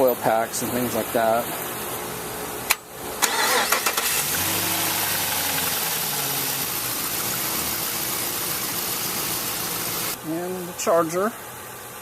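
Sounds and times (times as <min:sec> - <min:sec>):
car engine idling: 0:03.2 - 0:10.2
starter motor whine: 0:03.2 - 0:10.2.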